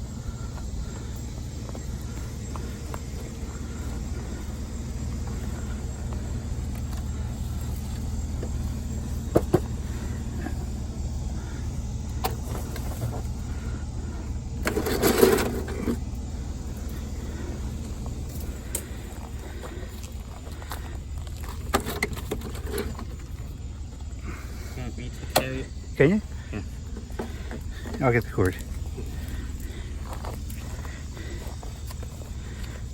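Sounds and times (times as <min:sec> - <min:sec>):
vehicle engine rumble: 0:00.0 - 0:32.9
scrap metal clattering: 0:14.6 - 0:16.1.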